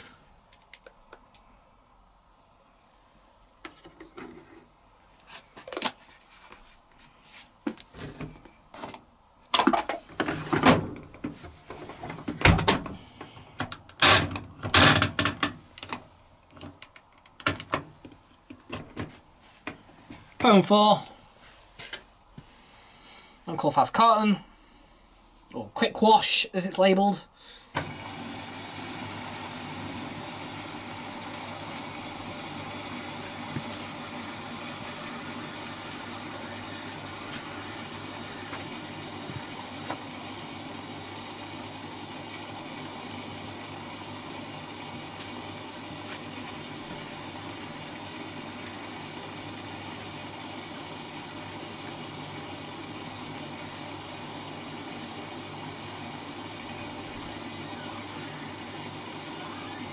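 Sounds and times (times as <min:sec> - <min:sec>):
washing machine filling with water: 0:27.8 - 0:59.9.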